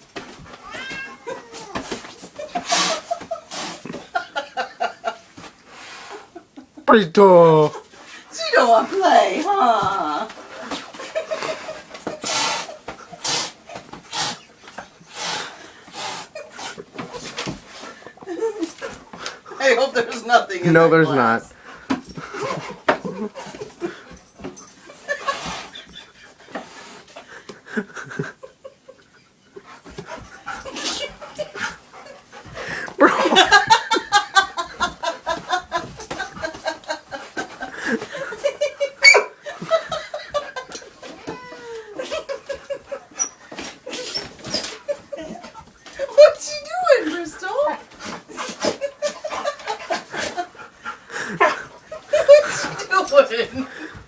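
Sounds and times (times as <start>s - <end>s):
pet's breathy snorts: 12.1s - 18.0s
person chuckling: 21.9s - 26.2s, 27.4s - 43.2s.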